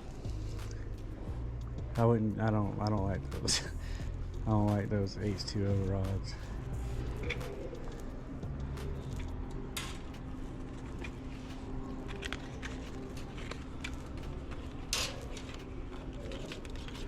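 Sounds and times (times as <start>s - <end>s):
store background hum: 0.0s - 17.0s
handling clicks and rustles: 4.7s - 17.0s.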